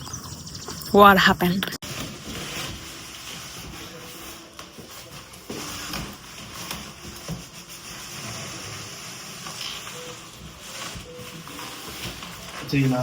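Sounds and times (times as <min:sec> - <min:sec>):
rubbing on phone microphone: 0:02.8 - 0:13.0.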